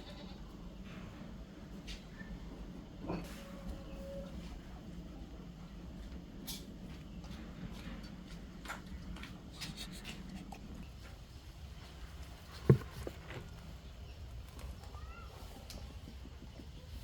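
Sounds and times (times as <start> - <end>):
faint light taps and knocks: 12.5 - 13.5.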